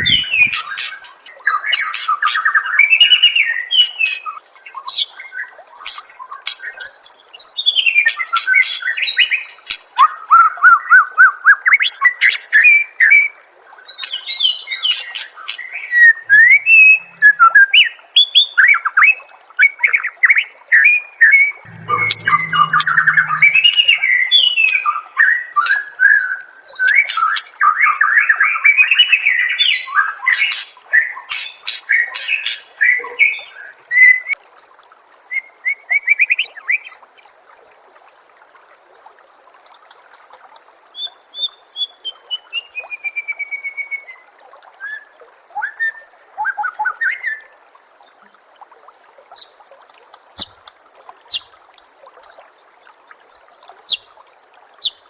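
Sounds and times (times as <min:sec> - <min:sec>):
trickling water: 0:00.0 - 0:55.0
bird singing: 0:21.7 - 0:24.0.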